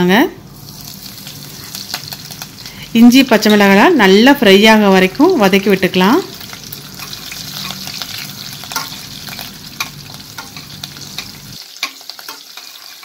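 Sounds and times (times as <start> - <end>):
oil sizzling in a pot: 0.4 - 13.0
metal spoon stirring: 6.9 - 13.0.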